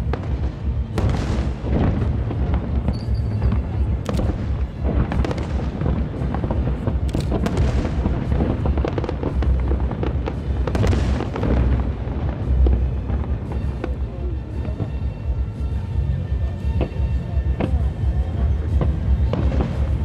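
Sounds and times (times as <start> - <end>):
low rumble of booms: 0.0 - 15.4
fireworks bursting: 0.0 - 20.0.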